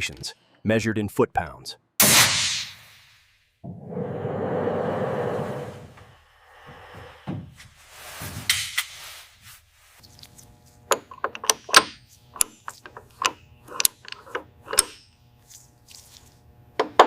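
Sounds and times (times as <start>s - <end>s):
hand tools clicking on metal: 10.9s - 15.0s.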